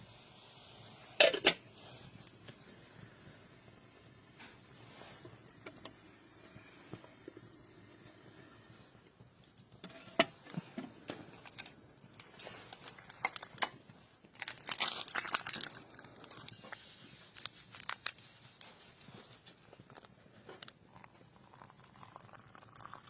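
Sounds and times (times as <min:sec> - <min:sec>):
crinkling and rustling: 0:09.4 - 0:21.3.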